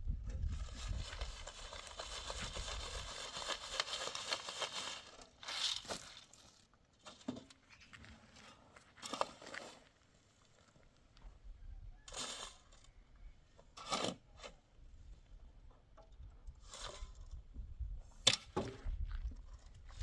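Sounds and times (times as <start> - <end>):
dry material rustling: 0.7 - 6.5.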